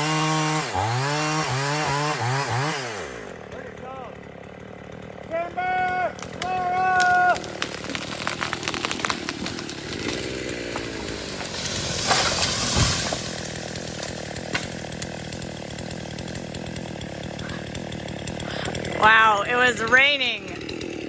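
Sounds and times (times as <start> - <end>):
chainsaw running: 0.0 - 21.0
wood cracking and snapping: 6.1 - 19.0
tree trunk thud on ground: 6.2 - 14.8
branches rushing through canopy: 7.0 - 14.4.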